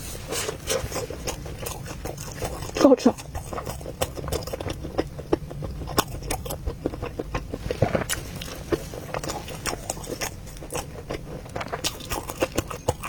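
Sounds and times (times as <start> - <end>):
person chewing with mouth smacks: 0.0 - 13.0.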